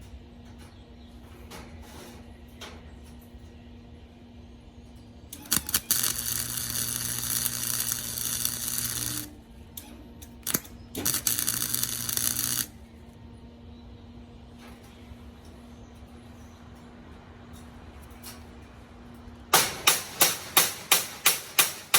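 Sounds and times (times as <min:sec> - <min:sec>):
low electrical hum: 0:00.0 - 0:21.9
welding arc crackling and sizzling: 0:05.3 - 0:13.0, 0:19.6 - 0:21.9.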